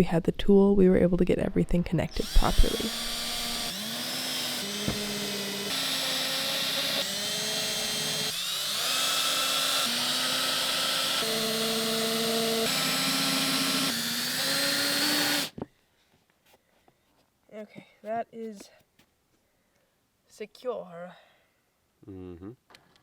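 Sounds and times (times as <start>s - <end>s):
power drill motor whine: 2.1s - 15.6s.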